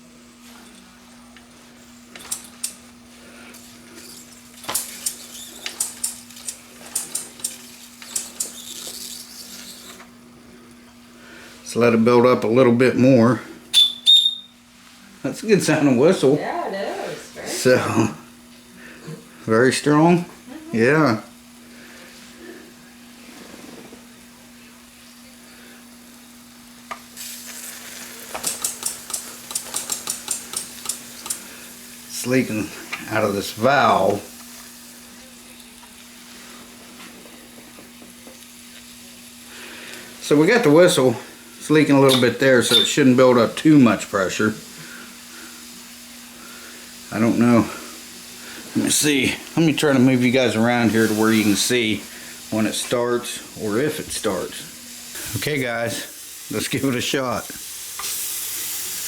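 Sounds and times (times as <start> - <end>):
steady low hum: 0.0 - 57.5
steam hissing and sputtering: 1.5 - 10.3, 21.3 - 59.0
toy steam engine clicks and spits: 4.6 - 10.0, 26.9 - 31.5, 57.9 - 59.0.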